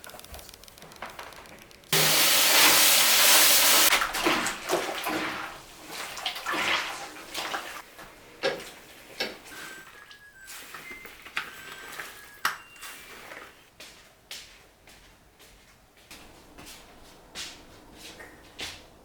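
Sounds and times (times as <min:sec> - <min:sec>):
water gushing: 0:02.0 - 0:07.9
water splashing and sloshing: 0:02.0 - 0:10.9.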